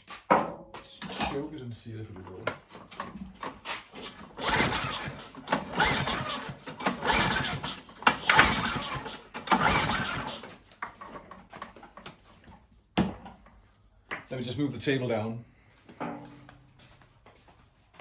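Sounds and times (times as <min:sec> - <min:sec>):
lawn mower pull-start cranking: 0:03.4 - 0:11.9.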